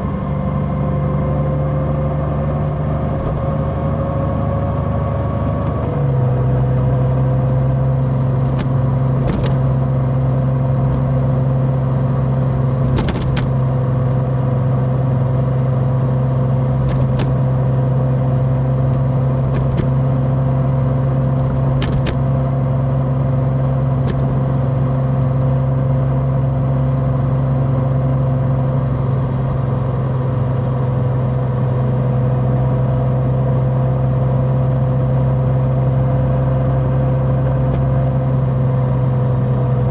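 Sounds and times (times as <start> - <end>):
motorcycle engine running: 0.0 - 4.4, 6.8 - 25.4.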